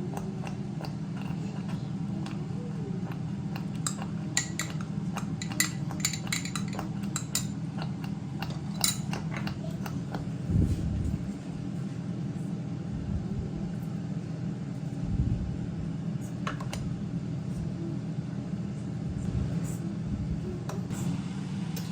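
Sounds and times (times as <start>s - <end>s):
steady low hum: 0.0s - 21.9s
cutlery and dishes clinking: 3.5s - 7.6s.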